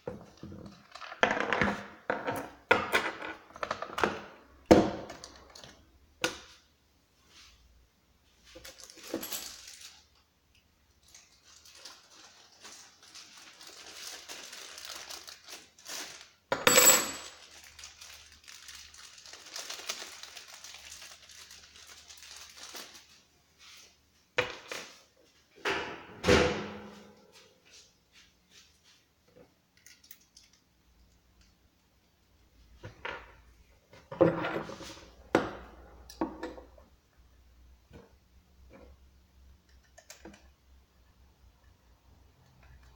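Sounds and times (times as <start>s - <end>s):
packaging rustling: 8.5s - 10.1s, 11.0s - 16.4s, 17.3s - 23.3s.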